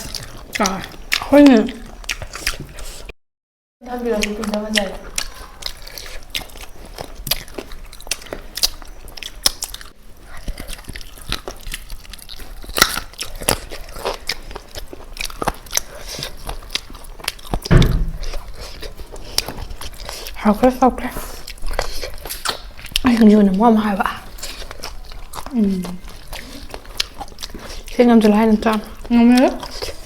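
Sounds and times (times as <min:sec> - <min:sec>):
chewing and biting chicken: 0:00.0 - 0:03.1, 0:04.1 - 0:23.4, 0:24.1 - 0:30.0
low thump: 0:17.7 - 0:18.4.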